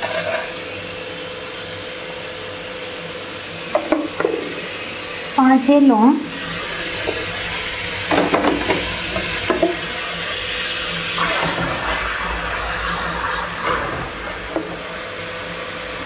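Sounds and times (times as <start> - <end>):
spices sizzling in hot oil: 3.3 - 15.9.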